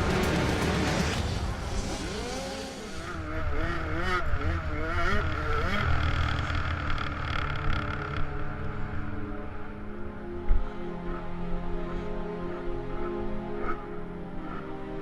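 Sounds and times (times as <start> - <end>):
dirt bike engine revving: 0.0 - 7.8.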